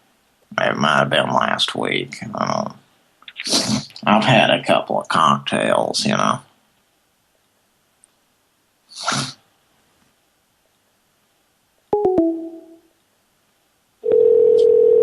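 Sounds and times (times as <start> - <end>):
telephone line noise: 14.0 - 15.0
telephone ringing tone: 14.0 - 15.0.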